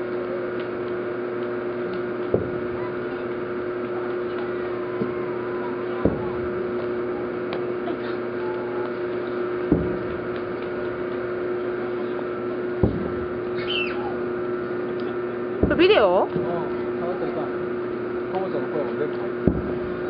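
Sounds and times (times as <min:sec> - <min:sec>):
steady hum: 0:00.0 - 0:20.0
distant fireworks booming: 0:02.0 - 0:11.6, 0:12.7 - 0:14.5, 0:19.4 - 0:20.0.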